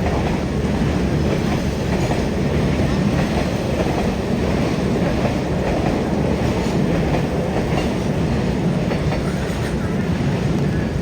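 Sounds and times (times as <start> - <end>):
clickety-clack of train wheels: 0.0 - 11.0
train wheels rumbling on rail: 0.0 - 11.0.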